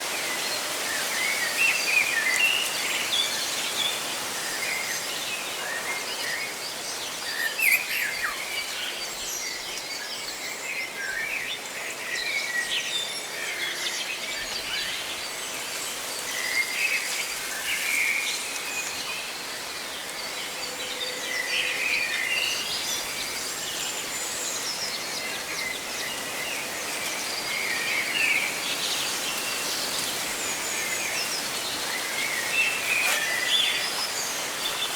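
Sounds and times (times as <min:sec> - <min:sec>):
leaves rustling: 0:00.0 - 0:09.8, 0:12.9 - 0:34.9
birds chirping: 0:05.3 - 0:09.7.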